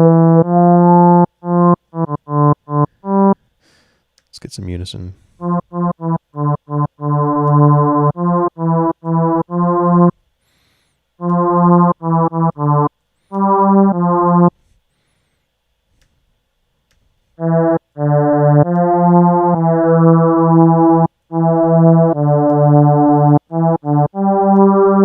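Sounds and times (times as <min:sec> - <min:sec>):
synthesizer saw-wave notes: 0:00.0 - 0:03.4, 0:05.4 - 0:10.1, 0:11.2 - 0:14.5, 0:17.4 - 0:25.0.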